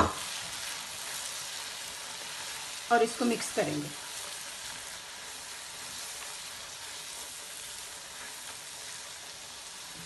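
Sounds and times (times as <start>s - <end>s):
masala sizzling in a pan: 0.0s - 10.0s.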